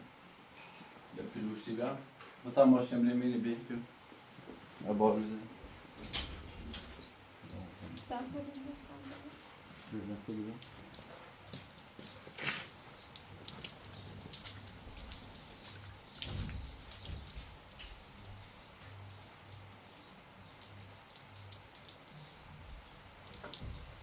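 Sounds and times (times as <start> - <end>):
raindrops ticking on a surface: 4.8 - 24.0.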